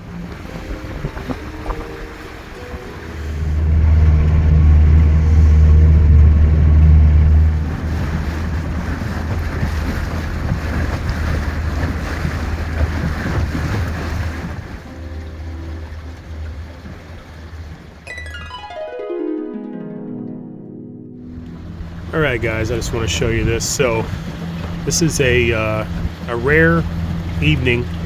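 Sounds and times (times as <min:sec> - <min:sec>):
wind on microphone: 0:00.0 - 0:14.9
boat motor humming: 0:00.0 - 0:19.4, 0:20.1 - 0:28.0
water rushing: 0:00.0 - 0:28.0.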